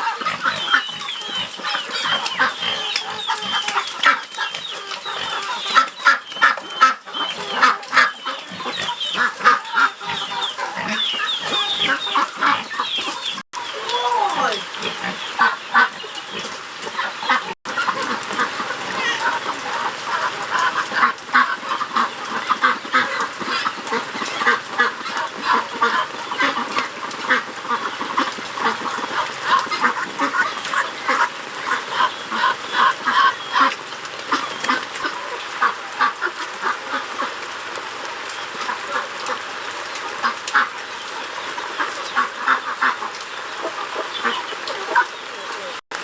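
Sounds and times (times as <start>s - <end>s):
poultry calling: 0.0s - 37.6s, 38.2s - 45.8s.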